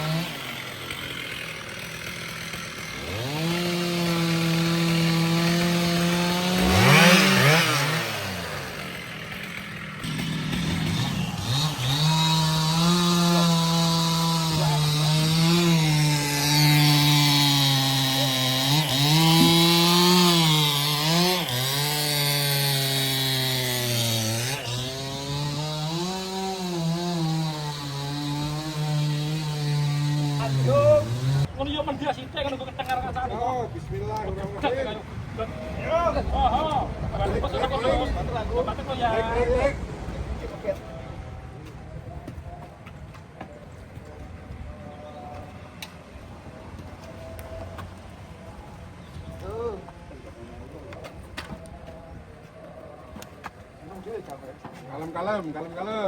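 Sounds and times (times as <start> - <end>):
chainsaw cutting wood: 0.0 - 31.5.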